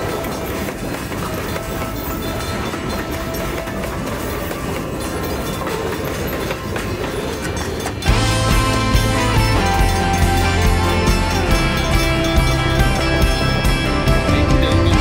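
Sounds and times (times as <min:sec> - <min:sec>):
music: 0:00.0 - 0:15.0
train running on rails: 0:00.0 - 0:15.0.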